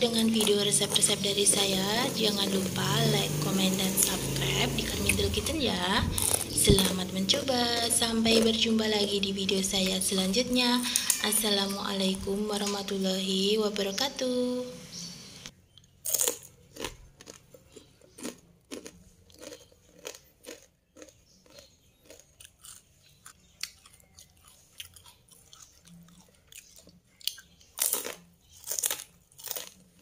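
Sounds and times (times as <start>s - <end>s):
crispy cracker crunching: 6.2s - 8.7s, 15.8s - 30.0s.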